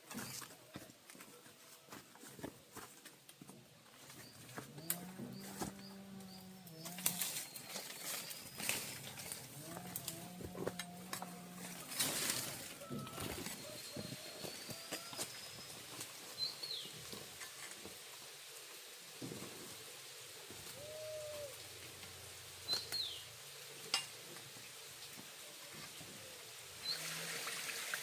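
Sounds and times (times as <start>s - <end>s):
faint steady hiss: 0.0s - 28.0s
birds chirping: 3.9s - 10.3s, 11.2s - 17.2s, 22.6s - 24.8s.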